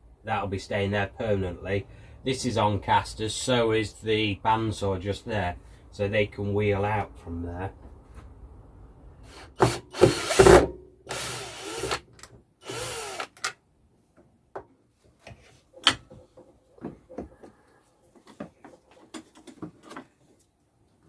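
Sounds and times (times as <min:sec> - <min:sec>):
small power tool whirring: 0:09.6 - 0:10.5, 0:11.1 - 0:12.0, 0:12.6 - 0:13.5
light knocks and clatter: 0:14.5 - 0:20.3.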